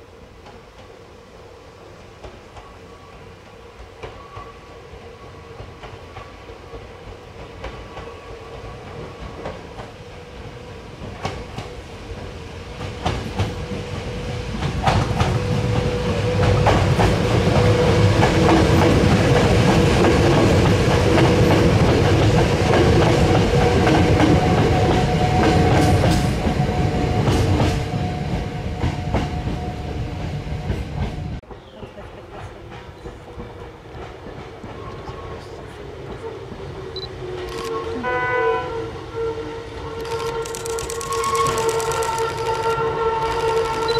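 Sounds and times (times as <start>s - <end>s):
train running hum: 0.0s - 43.9s
train wheels clacking on rail joints: 11.0s - 35.5s, 40.0s - 43.9s.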